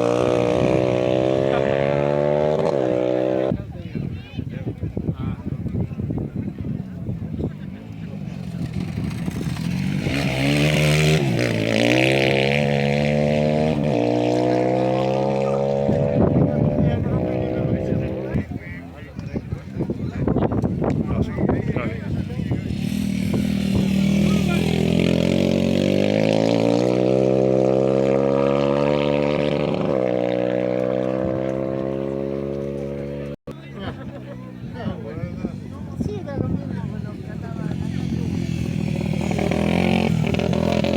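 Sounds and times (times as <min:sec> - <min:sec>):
racing engine at high revs: 0:00.0 - 0:03.6, 0:08.0 - 0:18.4, 0:22.5 - 0:33.4, 0:37.6 - 0:40.9.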